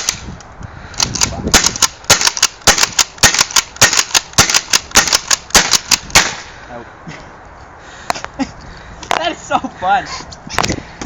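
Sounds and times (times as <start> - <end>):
paintball gun shots: 1.0 - 6.5.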